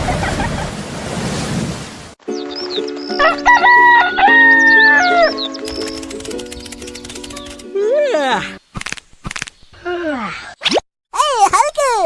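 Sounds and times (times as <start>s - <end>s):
background music: 2.2s - 8.6s
bird chirps: 2.3s - 3.2s, 4.5s - 7.6s
rooster crowing: 3.2s - 5.4s.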